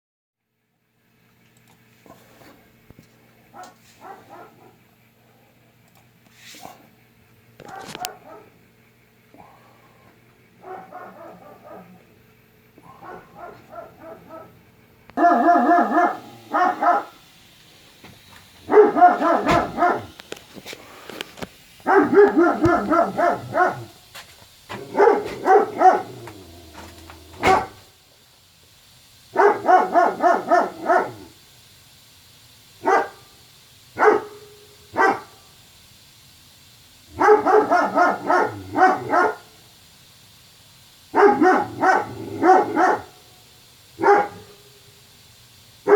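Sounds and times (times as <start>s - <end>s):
dog barking: 3.5s - 4.8s, 7.6s - 8.6s, 10.6s - 12.0s, 12.8s - 14.6s, 15.2s - 17.2s, 18.6s - 20.2s, 21.8s - 24.0s, 24.8s - 26.4s, 27.4s - 27.9s, 29.3s - 31.3s, 32.8s - 33.3s, 34.0s - 35.4s, 37.1s - 39.5s, 41.1s - 43.2s, 44.0s - 44.7s.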